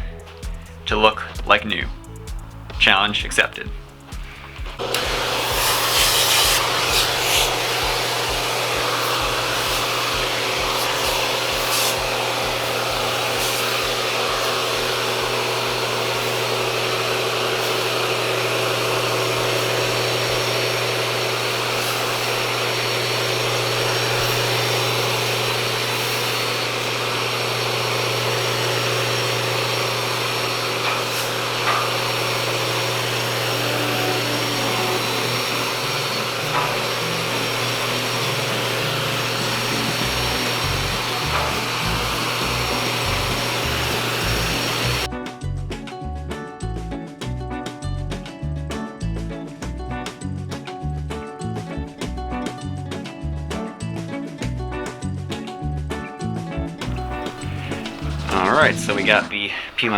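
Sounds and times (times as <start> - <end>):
vacuum motor running: 0.0 - 1.3, 3.7 - 45.1, 56.8 - 59.9.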